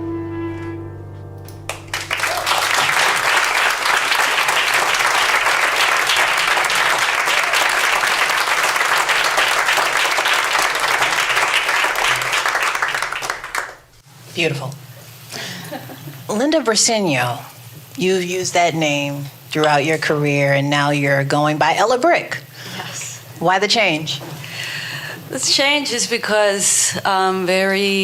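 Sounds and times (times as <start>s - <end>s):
song's held note: 0.0s - 2.5s
audience applause: 1.7s - 13.9s.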